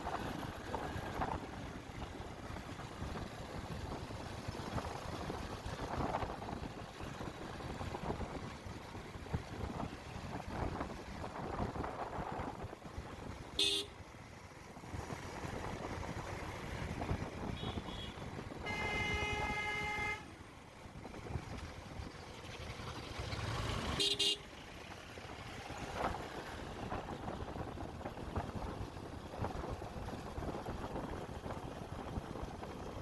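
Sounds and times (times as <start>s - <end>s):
wind and road noise on motorbike: 0.0s - 33.0s
vehicle horn honking: 13.6s - 14.0s, 17.5s - 20.3s, 24.0s - 24.5s.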